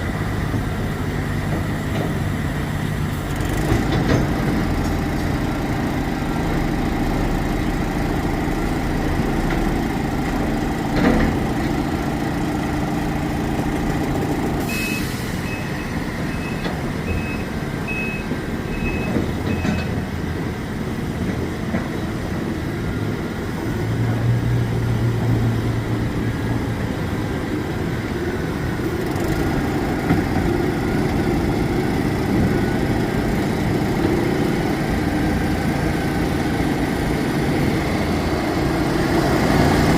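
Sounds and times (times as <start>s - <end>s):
diesel truck engines running: 0.0s - 39.9s
reversing alarm beeping: 14.7s - 20.0s.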